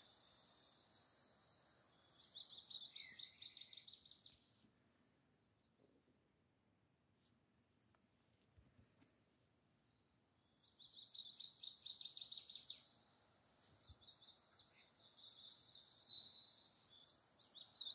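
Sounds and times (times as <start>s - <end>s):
songbird chirping: 0.0s - 4.7s, 9.4s - 17.9s.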